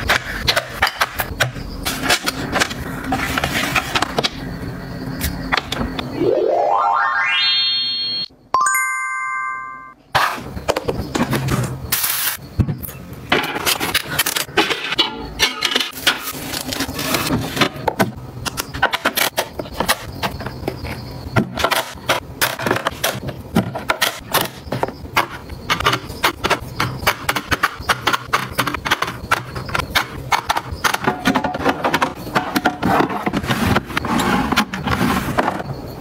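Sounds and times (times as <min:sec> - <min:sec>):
household items clattering: 0:21.4 - 0:35.7.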